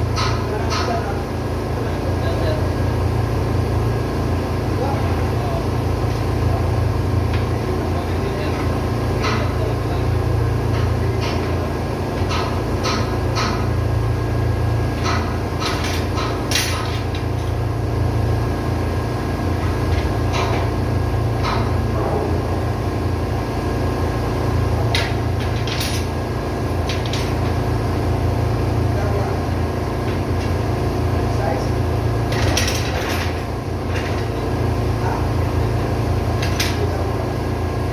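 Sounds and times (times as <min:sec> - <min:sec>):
diesel engine running: 0:00.0 - 0:37.9.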